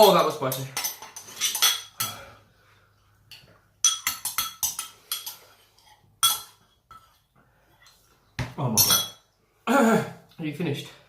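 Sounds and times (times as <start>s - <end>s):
cutlery clinking against a bowl: 0.5s - 2.3s, 3.4s - 7.2s.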